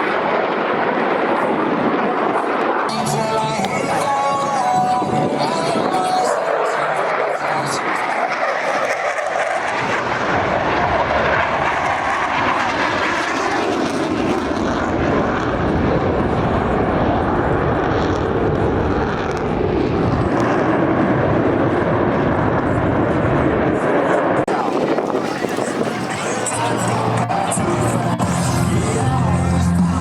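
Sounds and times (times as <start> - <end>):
jet engine rumble: 0.0 - 30.0.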